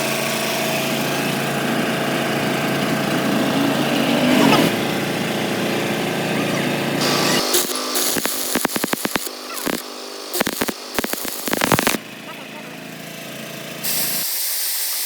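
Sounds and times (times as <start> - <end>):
machine humming: 0.4 - 14.3
hiss: 13.8 - 15.0.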